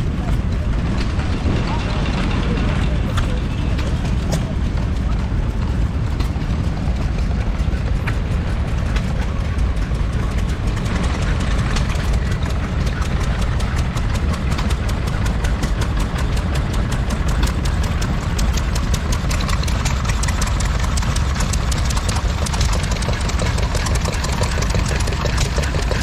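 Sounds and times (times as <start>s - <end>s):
stationary engine running: 0.0s - 26.0s
fast even ticking: 6.5s - 26.0s.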